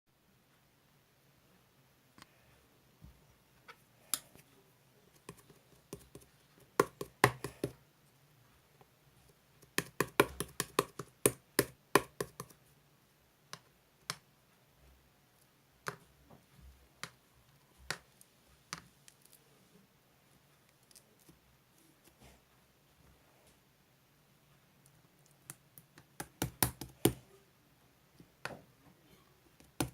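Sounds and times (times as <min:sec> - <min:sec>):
clicks and taps on hard object: 0:05.2 - 0:07.8, 0:09.6 - 0:12.6, 0:15.8 - 0:16.1, 0:17.0 - 0:17.2, 0:25.2 - 0:27.2, 0:29.6 - 0:29.9.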